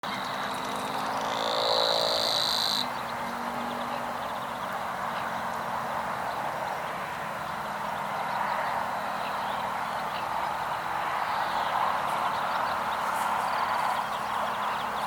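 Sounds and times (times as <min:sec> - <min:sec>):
chorus of frogs calling: 0:00.0 - 0:15.0.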